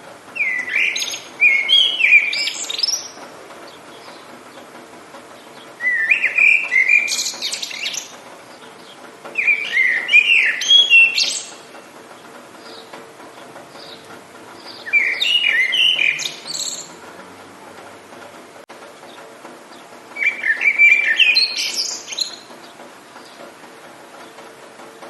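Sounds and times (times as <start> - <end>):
songbird warbling: 0.3 - 4.7, 5.3 - 17.2, 19.7 - 23.4.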